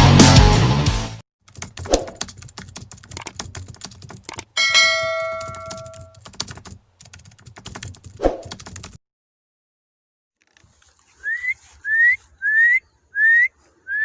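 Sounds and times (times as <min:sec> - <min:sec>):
rapid sharp clicks: 0:01.5 - 0:04.5
metallic ding: 0:04.6 - 0:06.1.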